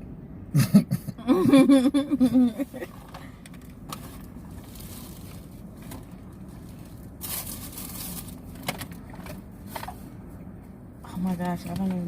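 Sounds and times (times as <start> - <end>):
steady low hum: 0.0 - 12.0
paper food wrapping rustling: 3.9 - 10.0.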